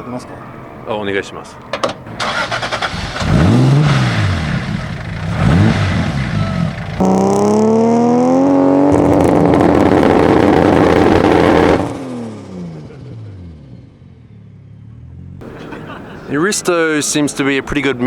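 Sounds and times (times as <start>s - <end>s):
car engine revving: 2.1s - 15.6s.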